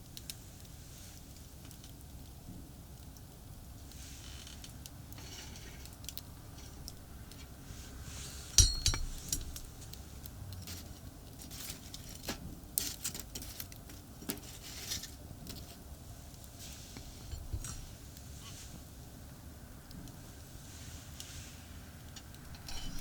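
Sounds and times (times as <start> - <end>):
distant highway traffic hum: 5.9 - 11.2
metal cookware clinking: 8.4 - 9.7, 22.4 - 23.0.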